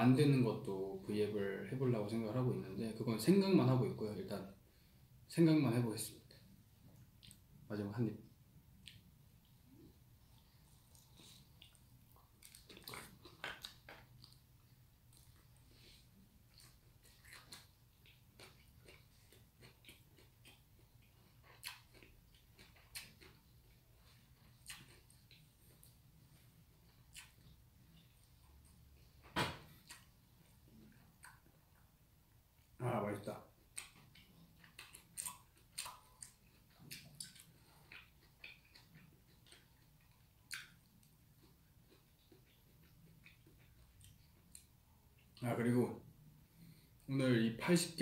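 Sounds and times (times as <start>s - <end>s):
faint low hum: 0.0s - 48.0s
soft chewing with mouth closed: 6.2s - 45.4s, 46.0s - 47.1s
soft wet mouth clicks: 6.9s - 7.5s, 8.8s - 9.6s, 10.7s - 14.4s, 33.7s - 39.7s, 40.5s - 41.1s.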